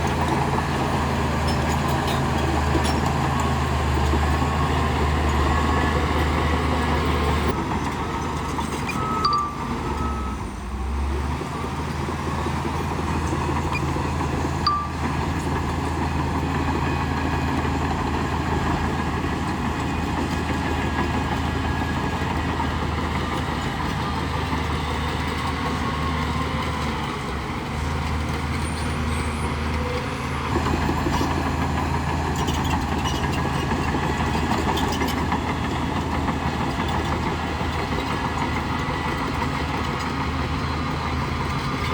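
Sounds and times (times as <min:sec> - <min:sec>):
bulldozer diesel engine drone: 0:00.0 - 0:41.9
short high chirps: 0:14.7 - 0:15.1.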